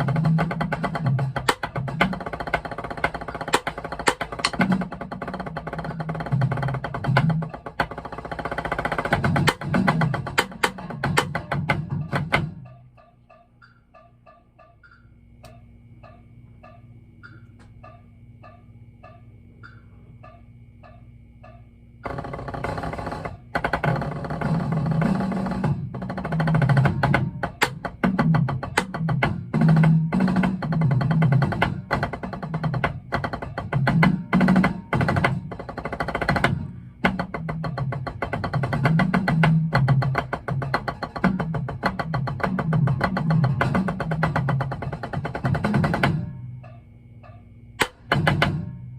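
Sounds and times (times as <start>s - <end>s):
rapid drum-corps percussion: 0.0s - 13.3s, 22.0s - 46.8s, 47.8s - 48.8s
metronome ticking: 0.0s - 48.7s.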